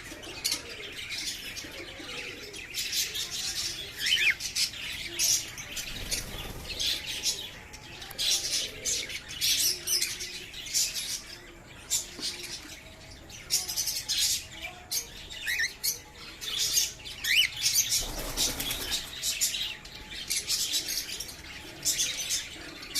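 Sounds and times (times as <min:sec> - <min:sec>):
wings fluttering: 0:05.8 - 0:07.0, 0:18.0 - 0:19.1.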